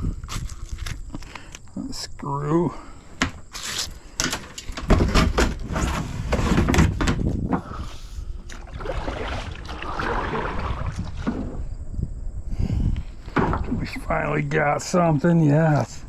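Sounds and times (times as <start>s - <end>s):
knocks and scrapes on kayak hull: 3.2s - 7.8s, 8.9s - 11.7s, 13.3s - 14.1s.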